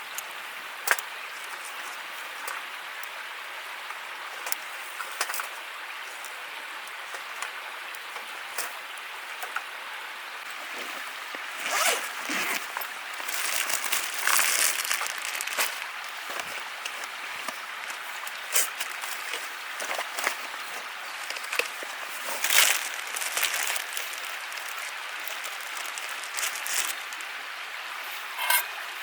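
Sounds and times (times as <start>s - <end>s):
rustling and crinkling: 0.8s - 2.6s, 10.4s - 27.4s.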